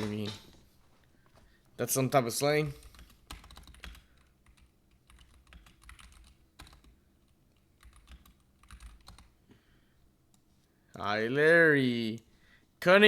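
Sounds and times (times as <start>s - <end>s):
faint keyboard typing: 2.4s - 9.4s.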